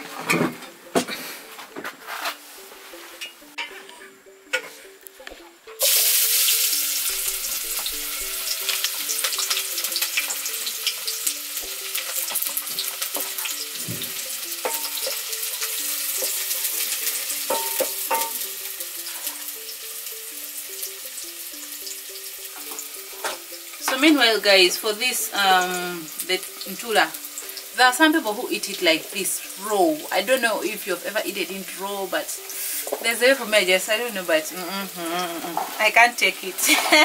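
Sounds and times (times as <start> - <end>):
onion sizzling in hot oil: 5.0 - 37.0
wooden spoon knocking pot: 17.5 - 18.4.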